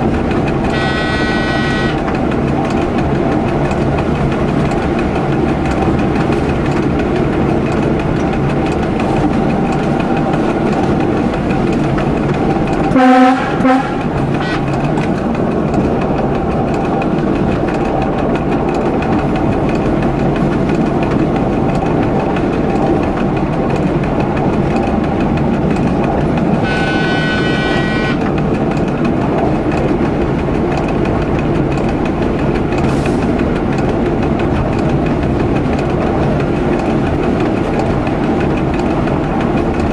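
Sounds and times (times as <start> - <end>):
railcar engine rumble: 0.0 - 39.9
wheels clickety-clack: 0.0 - 39.9
train horn blasts: 0.6 - 2.1, 12.9 - 14.8, 26.6 - 28.3.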